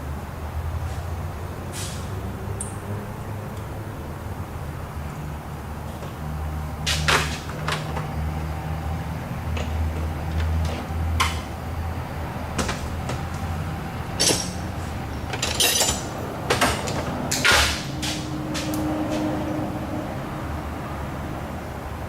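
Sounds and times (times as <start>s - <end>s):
hand tools clicking on metal: 15.3s - 19.3s.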